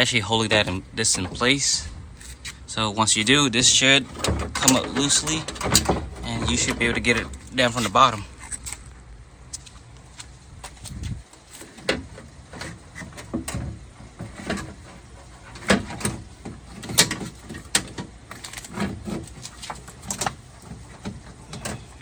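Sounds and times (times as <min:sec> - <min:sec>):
car door latch parts rattling: 0:03.5 - 0:08.9, 0:11.6 - 0:22.0.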